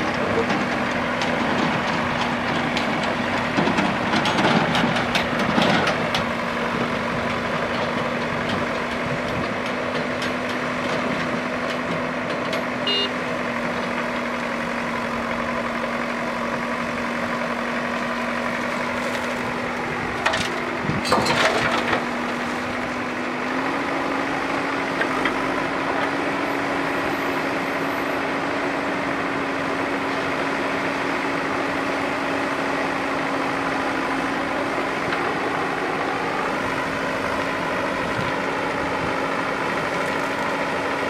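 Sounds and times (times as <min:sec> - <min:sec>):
heavy diesel engine running: 0:00.0 - 0:41.0
clattering crunching impacts: 0:17.2 - 0:23.5.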